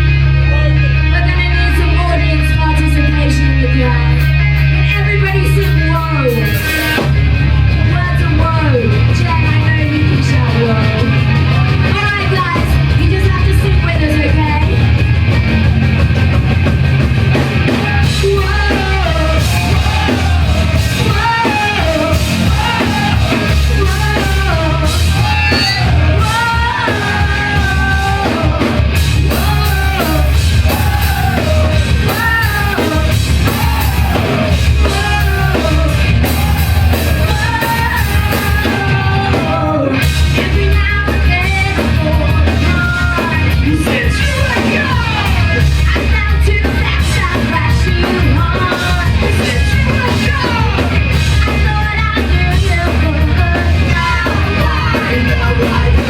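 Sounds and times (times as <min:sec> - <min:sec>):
live rock band playing: 0:00.0 - 0:56.0
person singing: 0:17.7 - 0:56.0.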